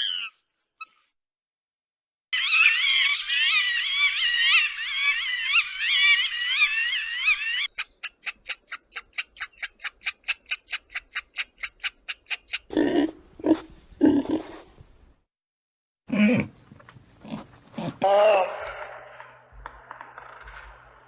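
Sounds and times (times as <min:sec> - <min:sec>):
high chirping animal calls: 0:00.0 - 0:01.0, 0:02.4 - 0:12.7
sharp animal clicks: 0:07.7 - 0:12.7.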